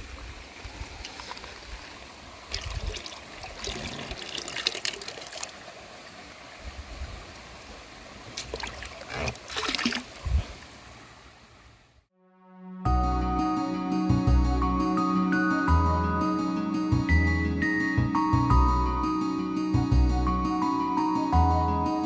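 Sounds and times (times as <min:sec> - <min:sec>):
water splashing: 0:00.0 - 0:11.5
stream water trickling: 0:00.0 - 0:12.0.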